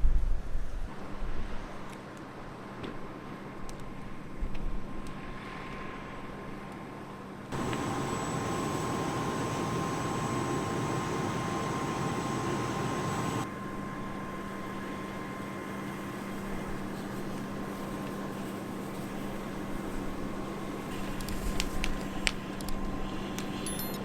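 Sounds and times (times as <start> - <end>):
background hum: 7.5 - 13.5
low steady tone: 7.5 - 13.5.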